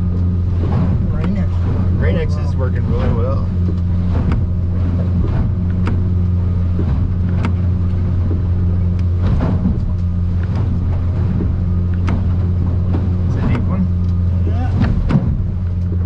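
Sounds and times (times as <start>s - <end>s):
hull slapping on water: 0.0s - 16.0s
outboard engine droning: 0.0s - 16.0s.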